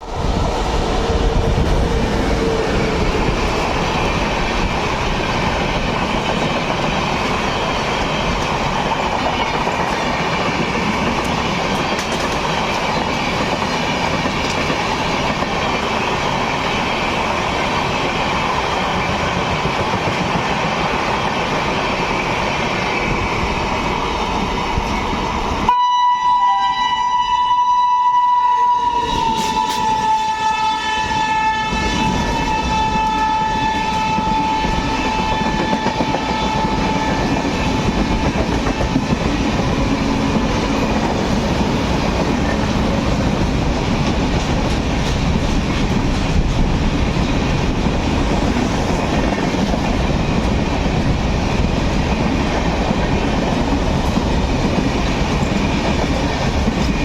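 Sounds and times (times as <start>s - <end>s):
train wheels clattering on rails: 0.0s - 25.7s, 29.0s - 30.2s, 31.7s - 57.0s
train horn: 25.7s - 41.0s.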